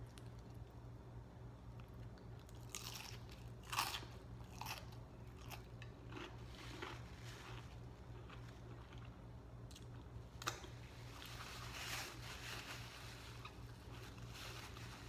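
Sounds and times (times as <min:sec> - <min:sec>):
faint chewing: 0:01.7 - 0:11.4
paper napkin rustling: 0:11.0 - 0:15.0.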